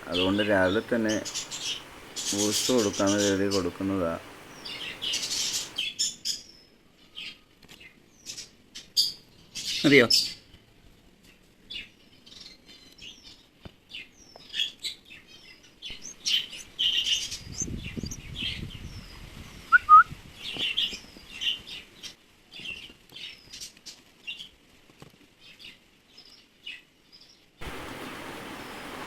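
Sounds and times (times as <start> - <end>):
nestling birds cheeping: 0.0 - 6.4, 27.6 - 29.0.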